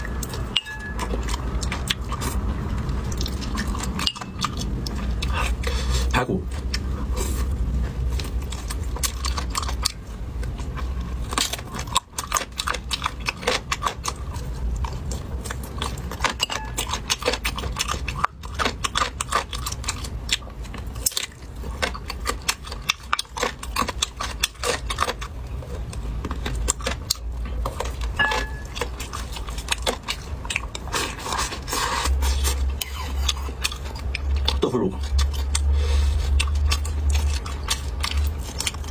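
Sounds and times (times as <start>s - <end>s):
utensils clinking on dishes: 0.0s - 1.3s, 16.2s - 17.0s, 28.2s - 28.8s
person chewing: 0.0s - 38.9s
steady low hum: 0.0s - 38.9s.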